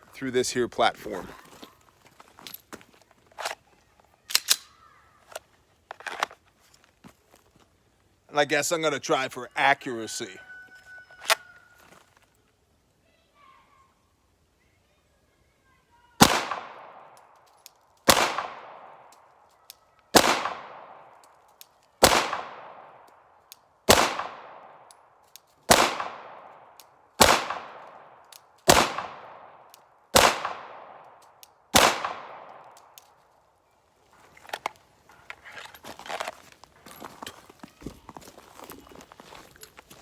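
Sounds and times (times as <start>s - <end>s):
pistol shots with echo: 16.2s - 17.1s, 18.1s - 19.1s, 20.1s - 21.1s, 22.0s - 23.0s, 23.9s - 24.8s, 25.7s - 26.6s, 27.2s - 31.0s, 31.7s - 32.7s.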